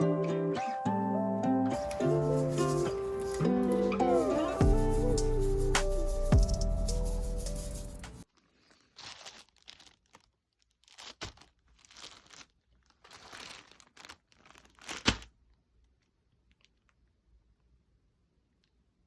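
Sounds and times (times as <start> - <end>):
packaging crinkling and tearing: 8.2 - 17.1.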